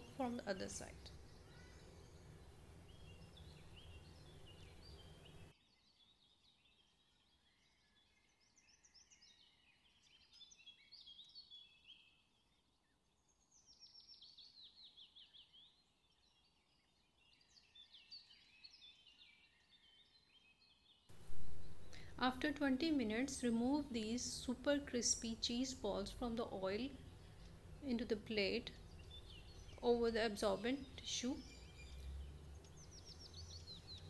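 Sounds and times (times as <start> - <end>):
low hum and hiss: 0.0 - 5.5, 21.1 - 34.0
birds chirping and twittering: 0.0 - 34.0.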